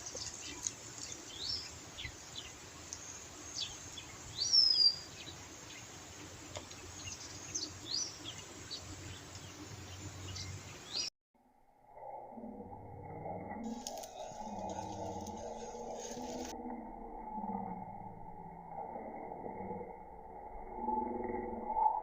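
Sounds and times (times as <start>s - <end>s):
background hiss: 0.0s - 11.1s
birds chirping: 0.0s - 11.1s, 13.7s - 16.5s.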